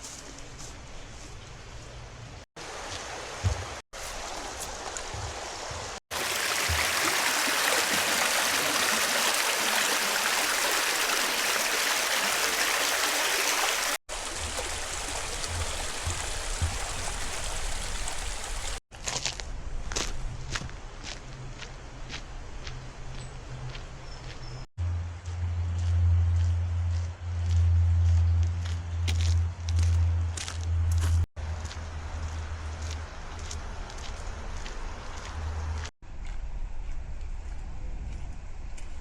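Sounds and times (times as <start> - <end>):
stream water rushing: 2.6 - 18.8.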